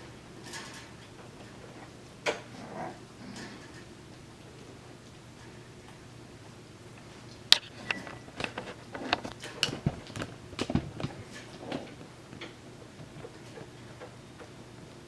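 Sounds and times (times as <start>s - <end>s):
puppies scuffling with clicks and knocks: 0.3s - 2.6s, 7.0s - 15.0s.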